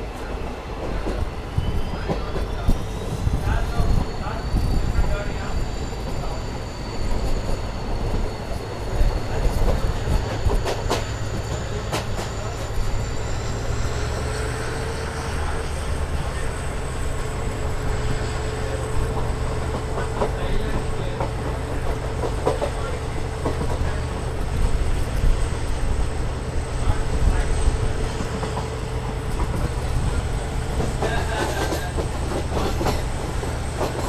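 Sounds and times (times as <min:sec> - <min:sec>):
train coach rumbling: 0:00.0 - 0:34.0
wheels clicking over rail joints: 0:26.9 - 0:34.0.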